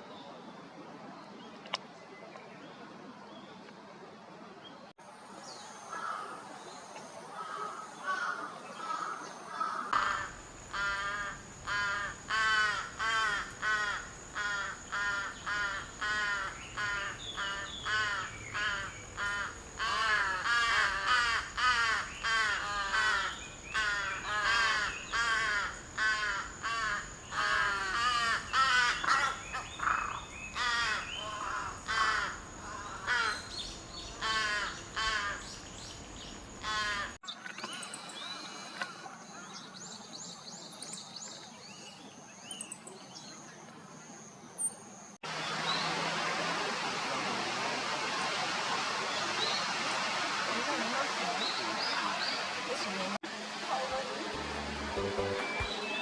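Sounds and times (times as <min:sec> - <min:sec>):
bird giving harsh caw-like calls: 0:07.4 - 0:37.2.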